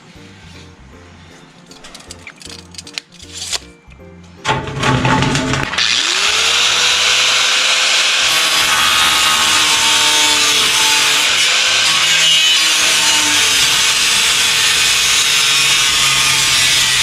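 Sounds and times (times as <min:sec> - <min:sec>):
electric power saw cutting wood: 0:04.7 - 0:17.0.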